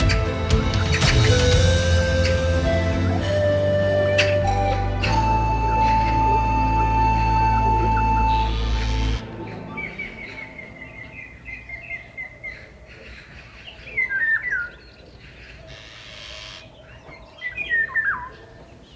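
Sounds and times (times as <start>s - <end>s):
small birds chirping: 5.8s - 18.9s.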